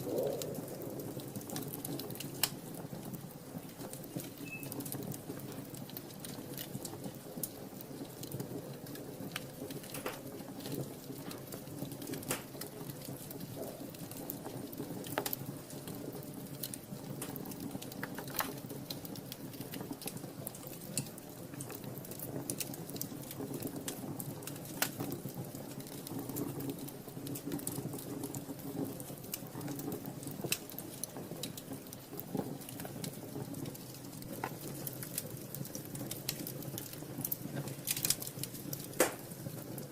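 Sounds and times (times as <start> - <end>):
low rush of flames: 0.0 - 39.9
wood fire crackling and popping: 0.0 - 39.9.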